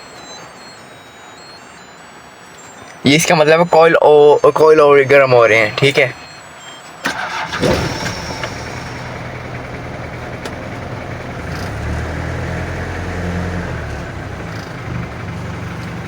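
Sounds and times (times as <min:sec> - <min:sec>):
diesel engine idling: 0:05.5 - 0:16.0.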